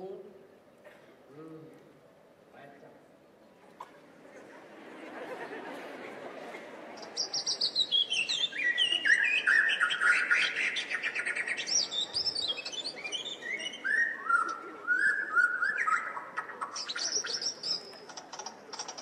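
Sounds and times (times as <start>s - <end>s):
birds chirping: 7.0s - 19.0s.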